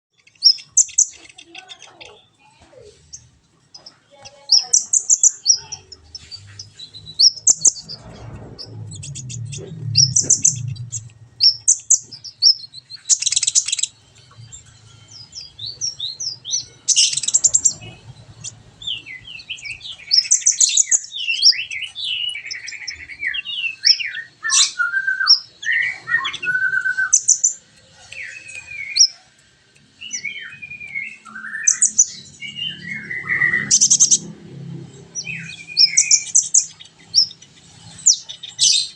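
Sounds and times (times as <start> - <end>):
bird singing chirps and trills: 0.1 - 38.9
sliding whistled bird notes: 4.6 - 29.3, 30.0 - 34.2, 35.2 - 38.9
low rumble: 5.7 - 20.7.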